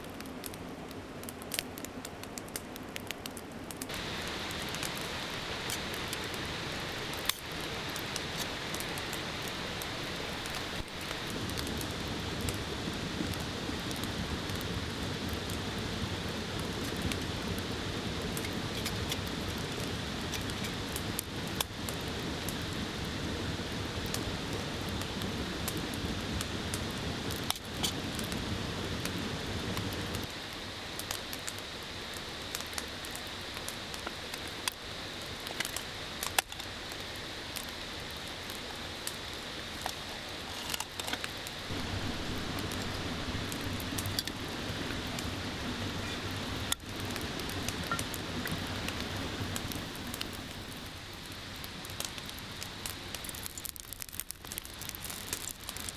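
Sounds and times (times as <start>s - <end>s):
campfire crackling: 0.0s - 55.9s
mountain stream rushing: 3.9s - 21.5s, 38.8s - 51.8s.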